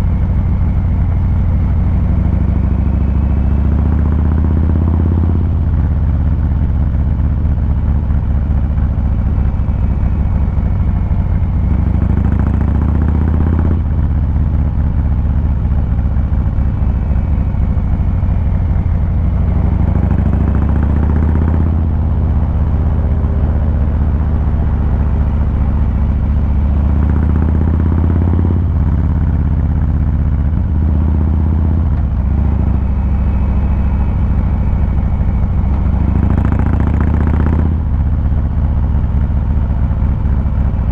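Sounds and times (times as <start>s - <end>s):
motorcycle exhaust roaring: 0.0s - 40.9s.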